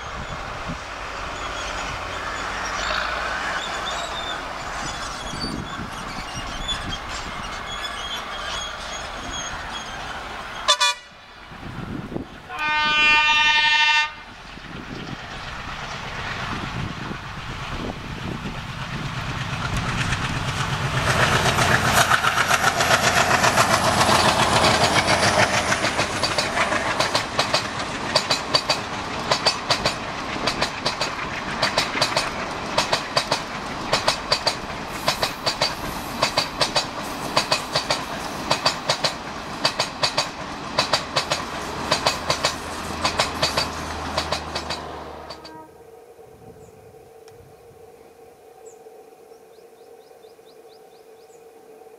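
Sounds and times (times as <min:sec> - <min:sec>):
train passing rumble: 0:00.0 - 0:51.9
diesel locomotive horn: 0:10.6 - 0:11.3, 0:12.4 - 0:14.4, 0:45.0 - 0:46.0
wheels clacking over rail joints: 0:14.4 - 0:45.6.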